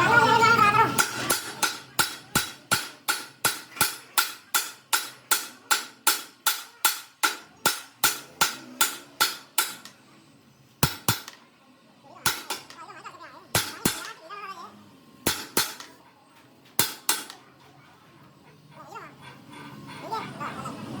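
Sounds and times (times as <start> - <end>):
hammer striking metal: 0.9 - 10.0, 10.8 - 11.4, 12.2 - 12.8, 13.5 - 14.2, 15.2 - 16.0, 16.8 - 17.4.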